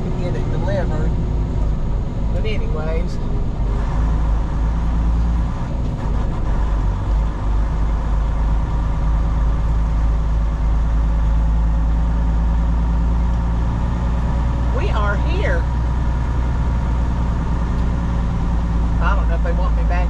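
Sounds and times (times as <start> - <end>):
diesel truck engine droning: 0.0 - 20.0.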